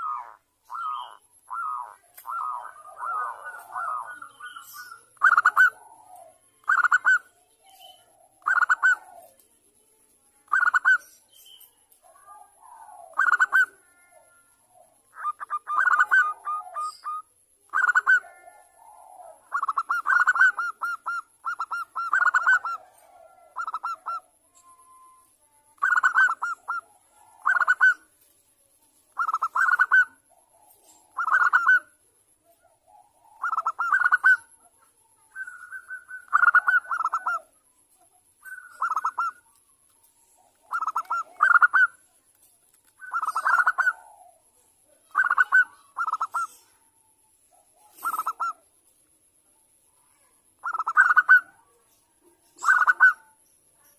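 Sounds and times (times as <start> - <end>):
dove cooing: 0.0 - 9.4, 12.0 - 28.2, 29.1 - 37.6, 38.4 - 39.6, 40.2 - 42.0, 43.0 - 48.6, 50.1 - 53.4.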